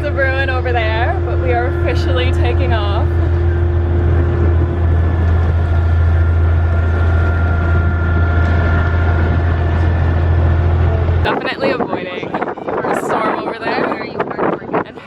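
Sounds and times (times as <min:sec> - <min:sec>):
faint steady whine: 0:00.0 - 0:12.0
boat engine droning: 0:00.0 - 0:15.0.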